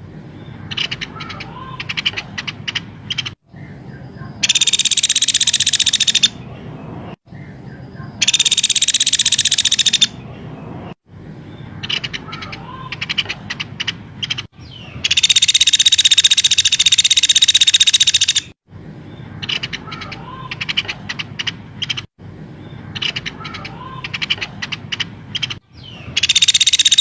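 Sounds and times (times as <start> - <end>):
songbird rapid trills: 0.4 - 6.7, 7.4 - 10.3, 11.4 - 18.6, 19.3 - 27.0
sharp quick bird chirps: 4.4 - 6.5, 7.4 - 10.3, 11.6 - 18.6, 23.0 - 27.0.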